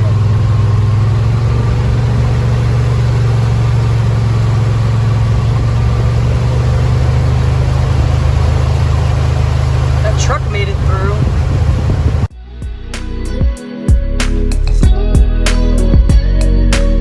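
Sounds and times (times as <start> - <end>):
vehicle engine droning: 0.0 - 12.3.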